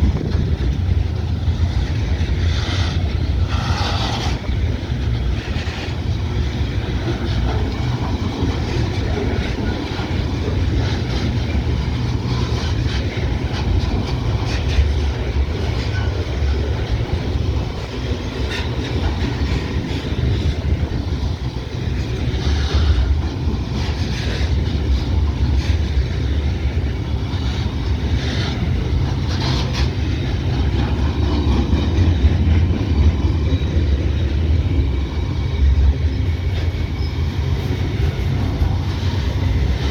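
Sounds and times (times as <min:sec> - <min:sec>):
freight train rolling past: 0:00.0 - 0:39.9
train clicks and clanks: 0:00.0 - 0:39.9.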